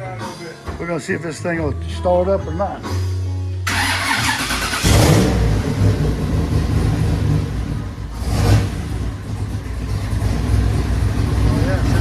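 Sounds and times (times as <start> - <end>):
engine revving: 3.7 - 12.0
car engine low rumble: 4.6 - 12.0.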